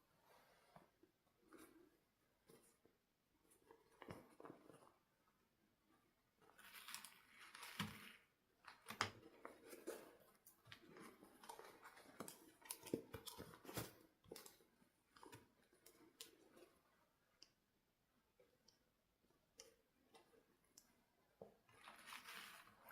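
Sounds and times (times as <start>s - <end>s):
plastic and cardboard crinkling: 6.5s - 16.0s, 21.7s - 22.9s.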